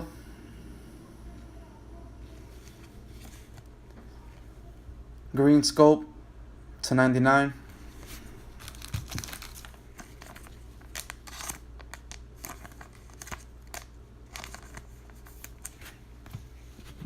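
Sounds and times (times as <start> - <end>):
low steady hum: 0.0 - 17.0
foil wrapper crinkling: 8.0 - 15.9.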